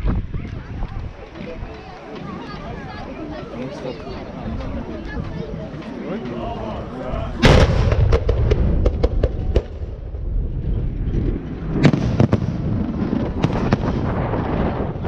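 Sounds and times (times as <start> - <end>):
low rumble: 7.0 - 15.0
firework shells bursting with bangs: 7.4 - 9.9
firework crackling: 7.4 - 15.0.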